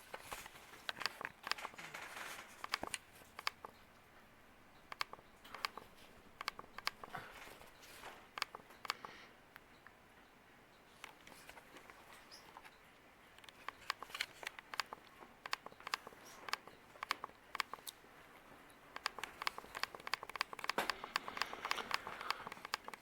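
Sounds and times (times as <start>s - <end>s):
crinkling with sharp clicks: 0.0s - 10.0s, 10.8s - 23.0s.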